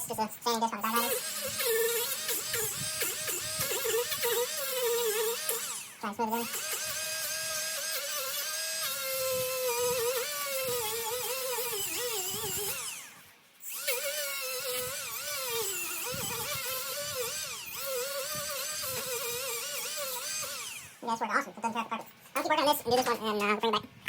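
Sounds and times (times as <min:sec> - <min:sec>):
die grinder whining on foam: 0:00.0 - 0:22.2.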